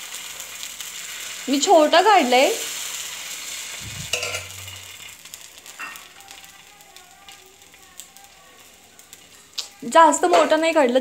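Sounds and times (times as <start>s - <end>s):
batter sizzling on a griddle: 0.0s - 11.0s
metal ladle clinking: 4.1s - 4.8s.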